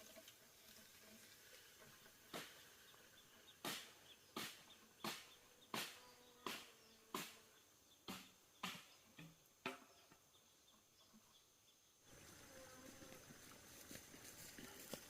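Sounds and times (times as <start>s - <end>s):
sharp knocks: 8.1s - 9.9s.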